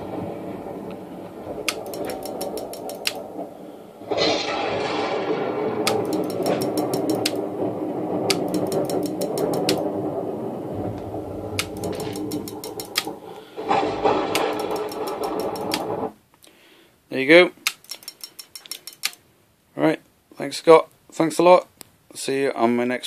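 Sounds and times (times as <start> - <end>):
recorded thunder rumble: 0.0 - 16.2
rapid clicking of strobe lights: 1.6 - 3.3, 5.8 - 7.6, 8.2 - 9.9, 11.0 - 13.3, 14.1 - 16.1, 17.6 - 19.2.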